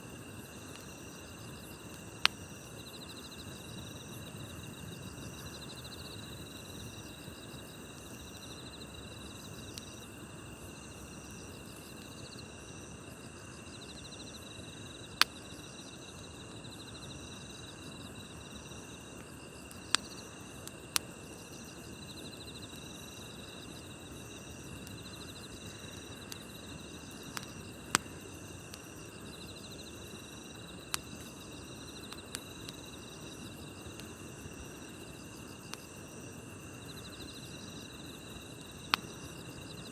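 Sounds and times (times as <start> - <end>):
burning wood crackling and popping: 0.0 - 2.8, 7.0 - 12.1, 18.5 - 39.7
campfire rustle: 0.0 - 12.1, 17.7 - 39.8
crickets and insects chirping: 0.0 - 39.9.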